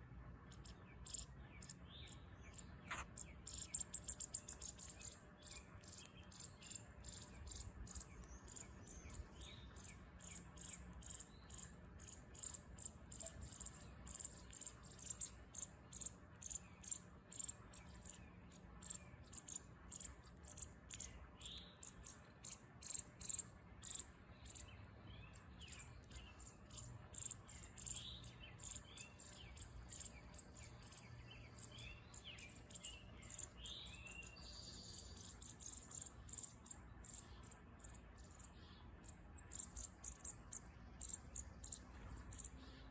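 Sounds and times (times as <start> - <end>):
insect chirping: 34.8 - 38.7, 39.5 - 42.8.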